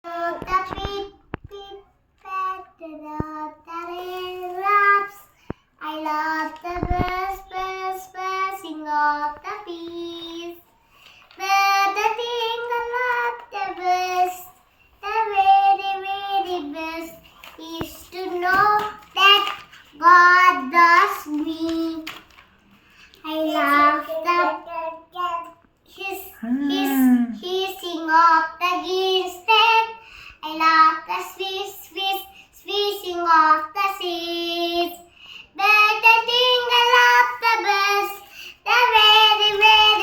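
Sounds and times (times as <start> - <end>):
child singing: 0.0 - 10.7, 11.3 - 22.3, 23.2 - 40.0.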